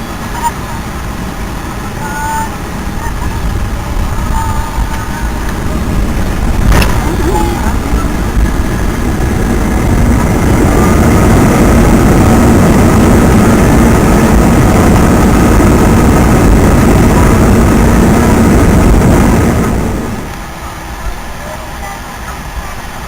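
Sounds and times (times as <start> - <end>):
faint high whine: 0.0 - 23.0
jet engines roaring: 0.0 - 23.0.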